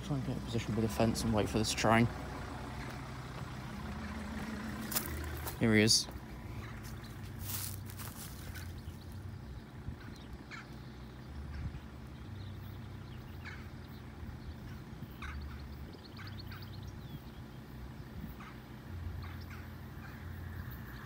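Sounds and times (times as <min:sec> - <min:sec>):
faint low rumble: 0:00.0 - 0:13.6
small birds chirping: 0:00.0 - 0:21.0.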